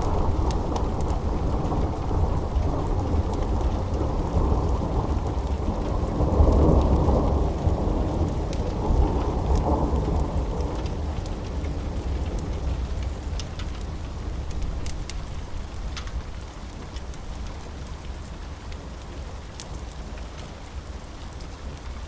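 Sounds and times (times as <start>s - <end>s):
deep thunder rumble: 0.0s - 16.4s
sharp crackles: 0.0s - 22.0s
steady rain: 0.0s - 22.0s.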